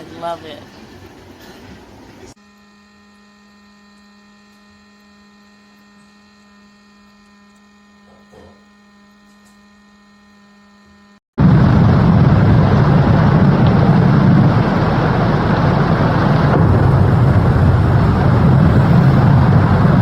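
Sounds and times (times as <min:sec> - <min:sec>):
electrical hum: 0:00.0 - 0:20.0
loud rushing noise: 0:11.4 - 0:20.0.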